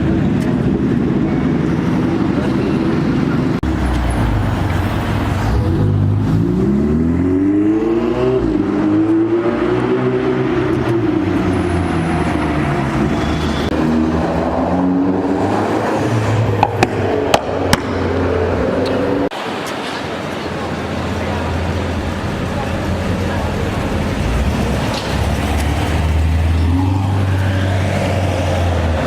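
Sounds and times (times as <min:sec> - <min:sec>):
car engine revving: 0:05.6 - 0:19.3.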